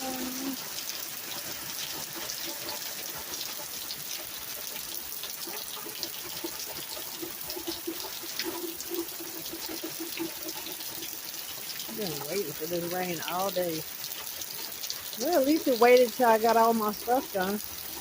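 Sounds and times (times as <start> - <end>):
heavy rain hissing: 0.0 - 0.8, 11.8 - 13.8, 14.9 - 18.0
dull drips pattering: 0.0 - 18.0
trickling runoff: 0.0 - 18.0
close drips: 3.5 - 18.0.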